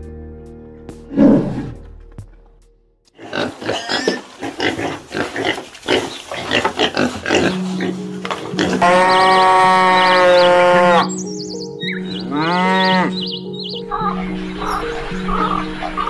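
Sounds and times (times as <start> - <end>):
pigs grunting: 3.2 - 11.1
bear call: 8.5 - 16.0.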